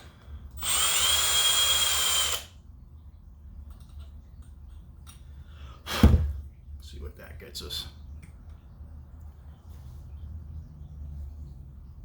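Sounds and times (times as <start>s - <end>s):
electric drill whining: 0.6s - 2.5s.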